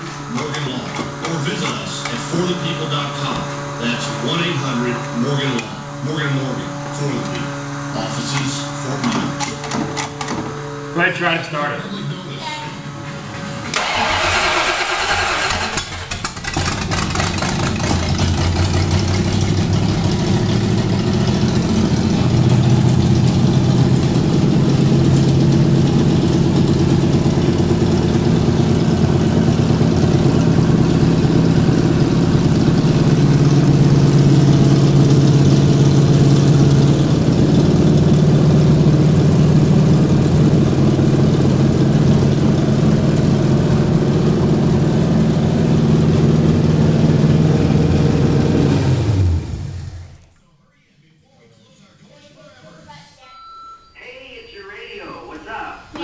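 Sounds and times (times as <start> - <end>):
car engine idling: 0.0 - 12.3, 13.8 - 50.3
starter motor cranking: 13.7 - 19.0.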